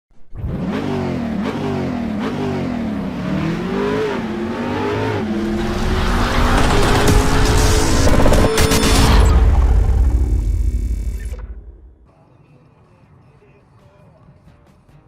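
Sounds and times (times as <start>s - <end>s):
car engine revving: 0.2s - 12.0s.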